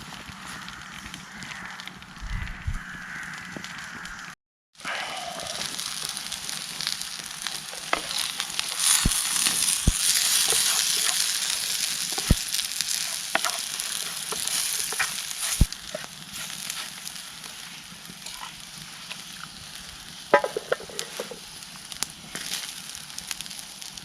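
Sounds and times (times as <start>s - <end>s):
fire popping and crackling: 0.0s - 24.0s
sausages sizzling: 0.0s - 24.0s.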